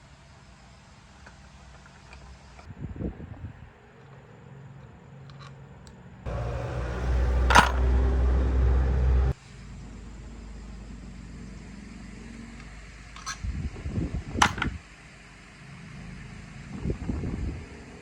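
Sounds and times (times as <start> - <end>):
machine motor humming: 6.3 - 9.4
quieter hum: 6.3 - 18.0
metallic knocks and clicks: 14.4 - 14.7.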